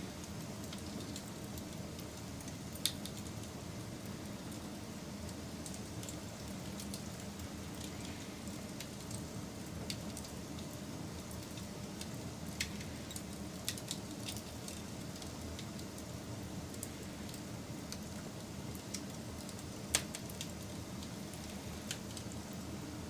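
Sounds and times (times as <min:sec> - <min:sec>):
fire crackles and pops: 0:00.0 - 0:22.9
campfire burning: 0:00.0 - 0:23.0.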